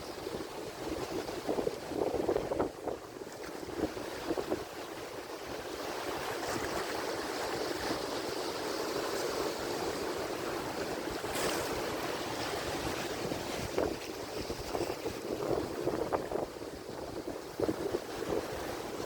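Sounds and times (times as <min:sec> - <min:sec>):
waves breaking: 0:00.0 - 0:19.0
water splashes: 0:05.9 - 0:19.0.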